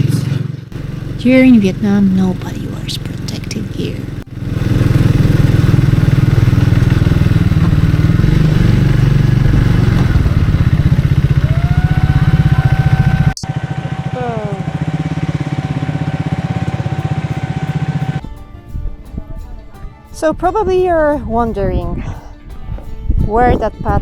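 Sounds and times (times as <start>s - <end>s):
motorcycle engine running: 0.0s - 18.3s
steady high tone: 12.3s - 18.2s.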